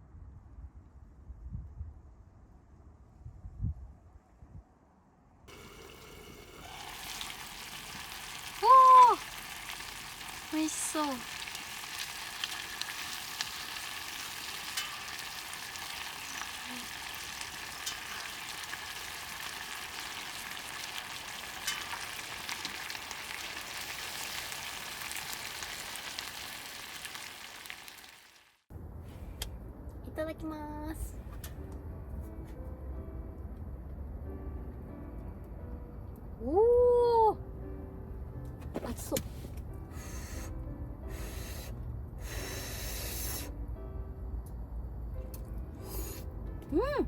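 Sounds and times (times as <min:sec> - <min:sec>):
food sizzling in a pan: 0:05.5 - 0:28.7.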